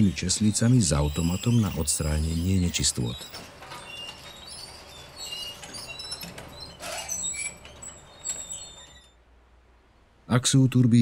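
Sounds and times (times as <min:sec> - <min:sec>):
faint low background noise: 0:06.1 - 0:11.0.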